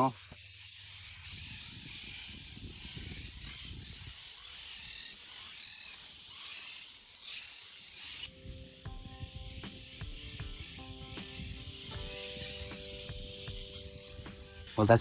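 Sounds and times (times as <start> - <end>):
insect chorus buzzing: 0.0 - 15.0
low wind rumble on microphone: 1.2 - 4.4, 8.3 - 15.0.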